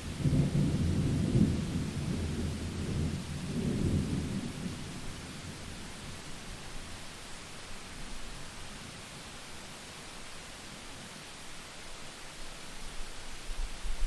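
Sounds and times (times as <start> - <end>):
heavy rain: 0.0 - 14.0
rolling thunder: 0.1 - 5.7.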